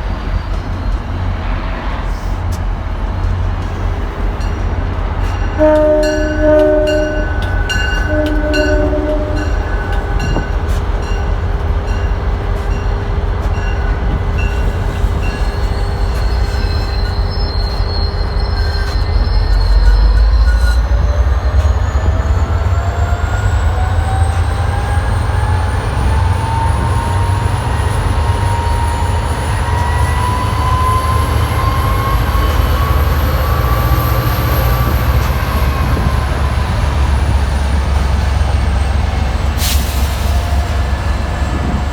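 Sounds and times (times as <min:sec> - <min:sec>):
train rumbling on rails: 0:00.0 - 0:41.9
train horn chord: 0:05.5 - 0:10.4.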